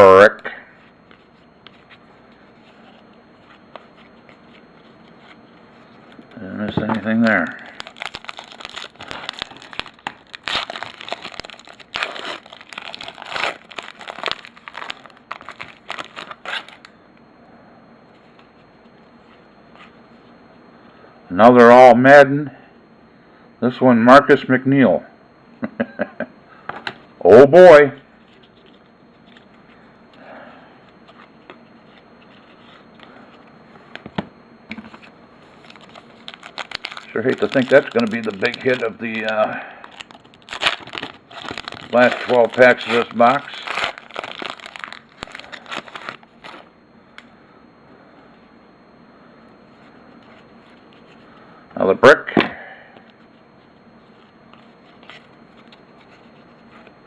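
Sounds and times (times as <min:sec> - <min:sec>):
card pack wrapper crinkling: 0:07.0 - 0:16.9, 0:35.5 - 0:46.7.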